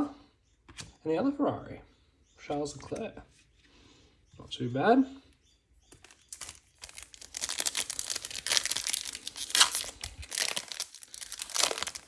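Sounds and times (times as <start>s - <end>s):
foil ripping: 6.0s - 12.0s
foil wrapper crinkling and tearing: 6.0s - 12.0s.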